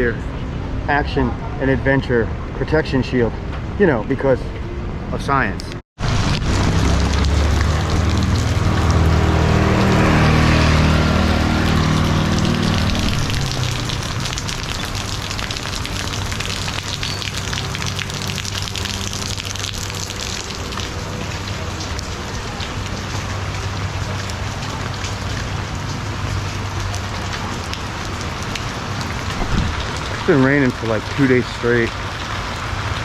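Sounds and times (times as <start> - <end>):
rain pattering on umbrella: 6.0 - 10.1, 11.1 - 33.0.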